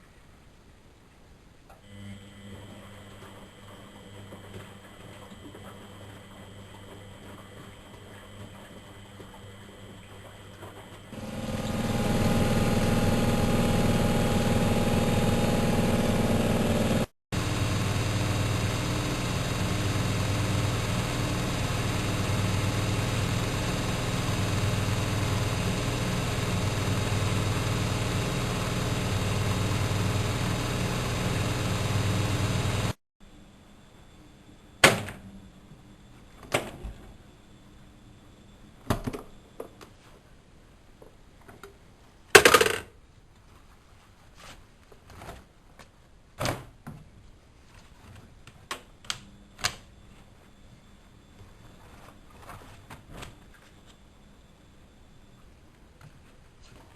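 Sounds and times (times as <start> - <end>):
washing machine humming: 1.9 - 33.7.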